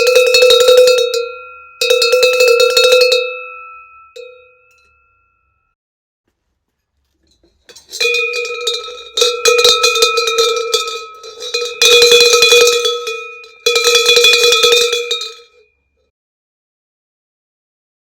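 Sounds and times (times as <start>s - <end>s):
cowbell clanking: 0.0s - 5.6s, 7.6s - 15.8s.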